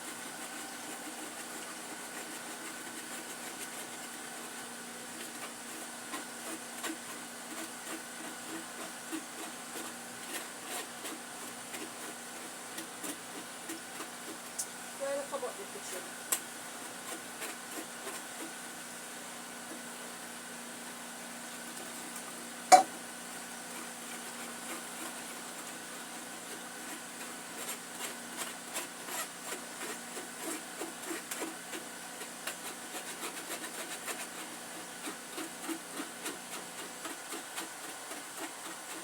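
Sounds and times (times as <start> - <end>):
utensil knock: 22.7 - 22.9
utensils tapping and scraping: 22.7 - 22.9.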